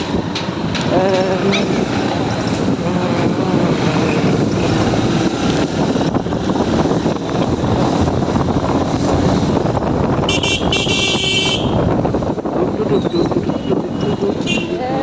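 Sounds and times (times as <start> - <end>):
motorbike engine: 0.0 - 15.0
road traffic noise: 0.0 - 15.0
wind rushing over microphone: 0.0 - 15.0
vehicle horn: 10.2 - 11.9, 14.0 - 14.8.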